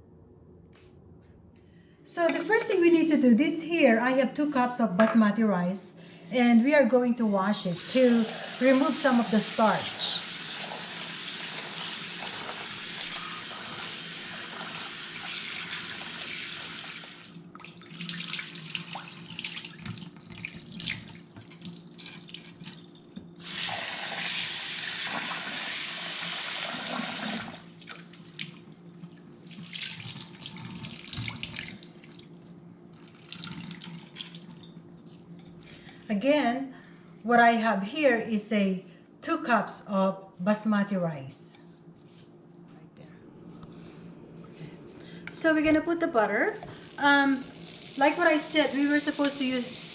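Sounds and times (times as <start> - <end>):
tap water running into bowl: 46.6 - 49.9.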